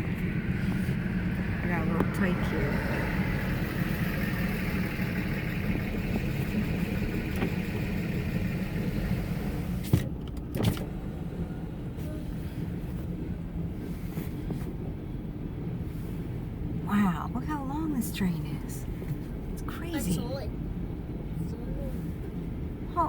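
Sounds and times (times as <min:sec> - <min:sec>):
freight train rumbling past: 0:00.0 - 0:09.8.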